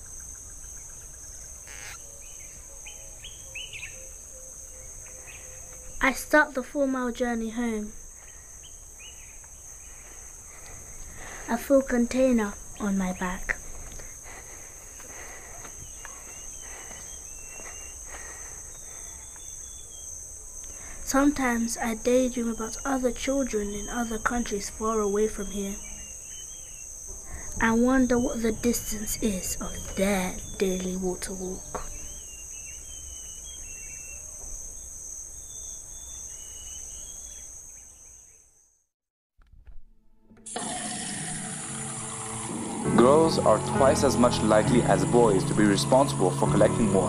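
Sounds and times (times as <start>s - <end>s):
insect chorus chirring: 0.0s - 38.8s, 40.5s - 47.0s
faint short bird calls: 1.6s - 2.0s.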